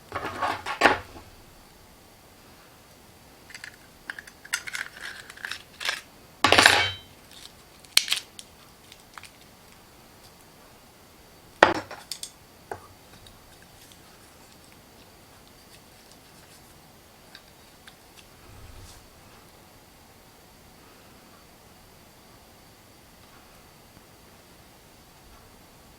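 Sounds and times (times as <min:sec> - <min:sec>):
dishes and utensils clinking: 0:06.5 - 0:07.1.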